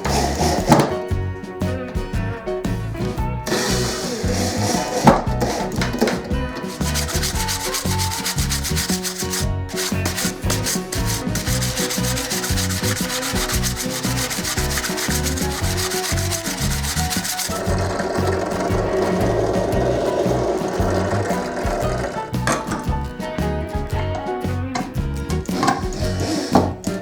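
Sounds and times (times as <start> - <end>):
wood sanded by hand: 0.0 - 0.9, 3.5 - 22.4.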